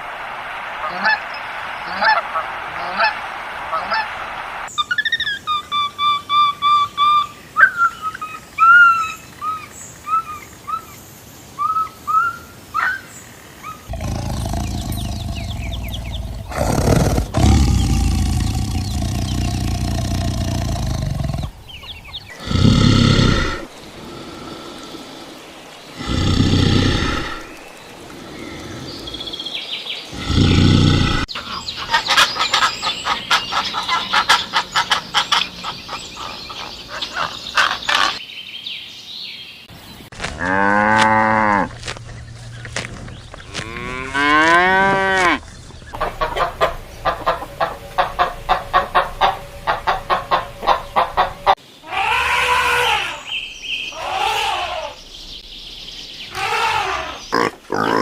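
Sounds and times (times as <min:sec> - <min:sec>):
cattle mooing: 0:13.9 - 0:21.5.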